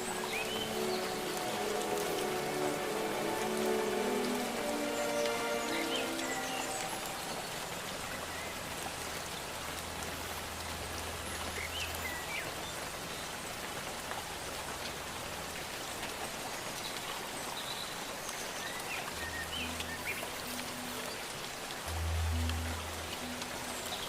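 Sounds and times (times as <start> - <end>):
high chirps of forest creatures: 0.0 - 8.8
soft low drone: 0.0 - 13.0, 19.1 - 24.0
steady rain falling: 0.0 - 24.0.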